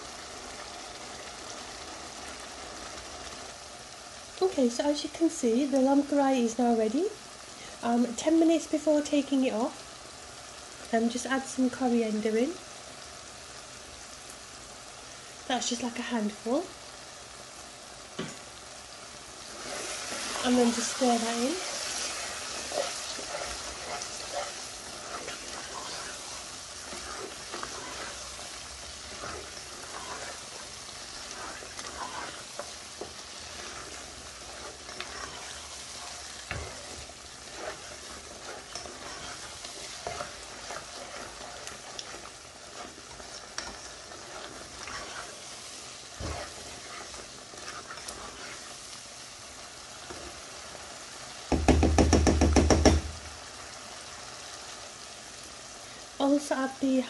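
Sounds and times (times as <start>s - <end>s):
curry sizzling in pan: 0.0s - 57.0s
spoon scraping metal pan: 19.5s - 48.8s.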